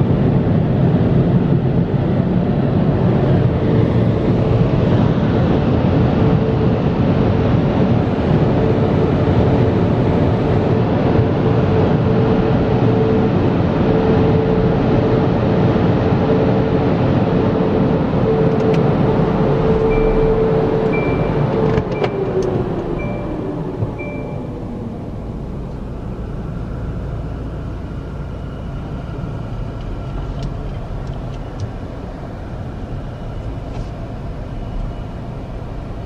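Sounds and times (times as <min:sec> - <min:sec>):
mid-pitched hum: 0:00.0 - 0:36.0
car wash rushing noise: 0:13.4 - 0:25.6.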